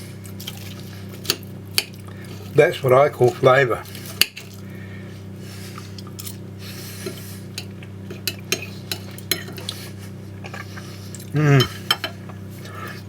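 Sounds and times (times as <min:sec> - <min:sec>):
steady low hum: 0:00.0 - 0:13.0
cutlery clinking on a plate: 0:07.6 - 0:09.7, 0:11.6 - 0:12.2.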